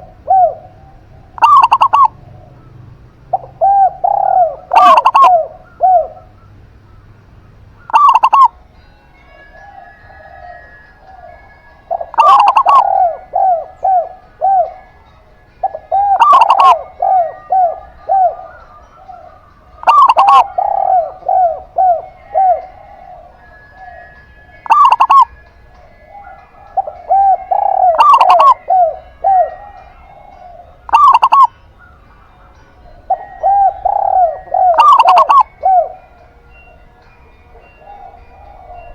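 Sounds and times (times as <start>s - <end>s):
dove cooing song: 0.0s - 38.9s.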